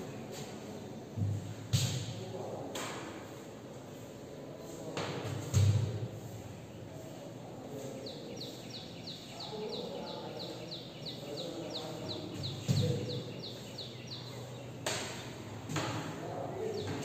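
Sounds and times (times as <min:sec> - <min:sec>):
bird chirping high: 0:08.0 - 0:14.8.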